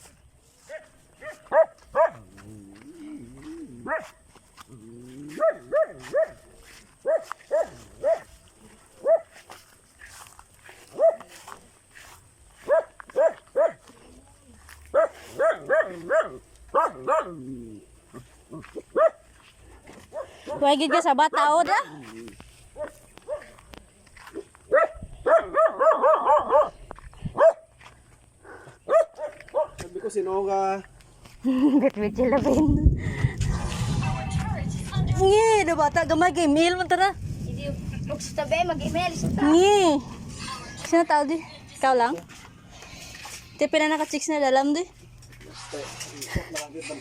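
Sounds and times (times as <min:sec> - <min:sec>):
dog barking: 0:00.7 - 0:02.3, 0:03.8 - 0:04.2, 0:05.3 - 0:08.3, 0:09.0 - 0:09.4, 0:10.9 - 0:11.3, 0:12.6 - 0:13.8, 0:14.9 - 0:17.4, 0:18.9 - 0:19.3, 0:20.1 - 0:21.1, 0:22.8 - 0:23.6, 0:24.7 - 0:26.8, 0:27.4 - 0:27.7, 0:28.8 - 0:30.1.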